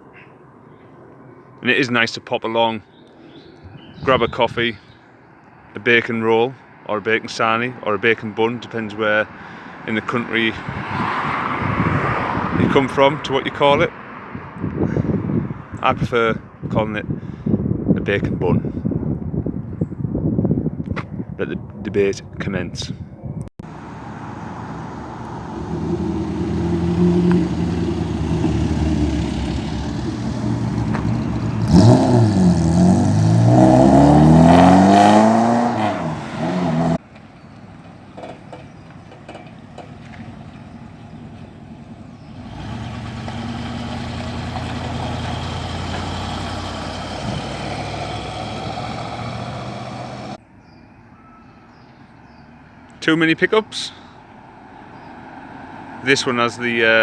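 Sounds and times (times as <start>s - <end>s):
cars driving off: 9.0s - 15.6s, 23.6s - 50.4s, 53.8s - 57.0s
car engine revving hard: 25.5s - 31.0s, 31.6s - 37.0s, 42.4s - 50.4s.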